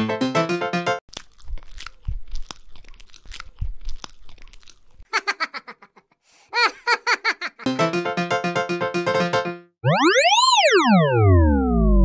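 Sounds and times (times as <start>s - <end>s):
background music: 0.0s - 1.0s, 7.7s - 9.7s
cartoon crunchy munching: 1.1s - 5.2s.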